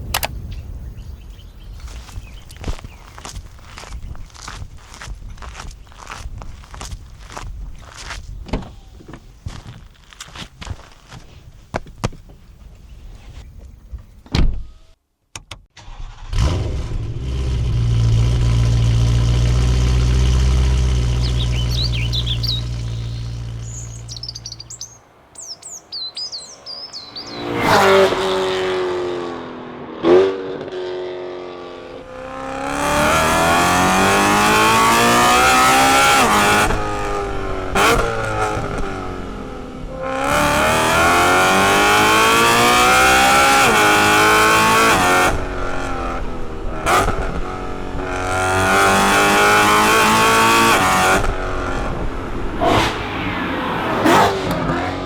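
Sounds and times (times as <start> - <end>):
faint birdsong: 0.4 - 4.3, 19.1 - 28.0
engine rev spikes: 15.8 - 25.6, 26.4 - 29.4, 48.2 - 55.0
car engine accelerating hard: 16.1 - 24.8, 26.7 - 55.0.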